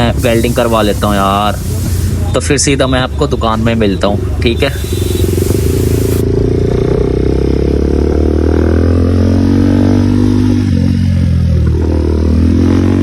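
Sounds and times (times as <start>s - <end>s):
motorcycle engine running: 4.2s - 13.0s.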